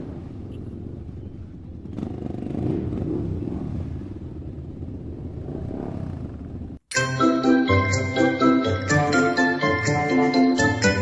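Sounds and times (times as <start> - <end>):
engine rumbling and revving: 0.0 - 6.8.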